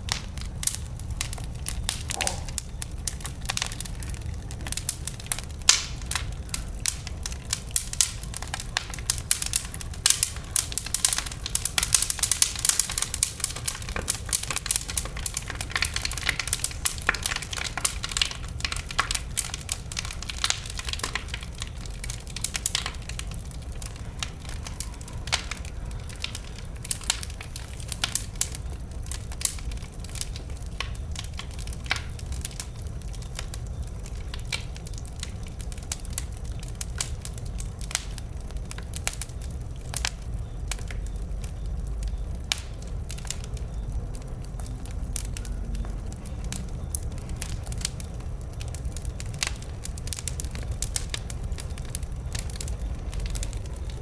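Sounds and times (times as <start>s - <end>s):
sharp pops and snaps: 0.0s - 23.4s
low rumble of flames: 0.0s - 54.0s
wood fire crackling: 0.0s - 54.0s.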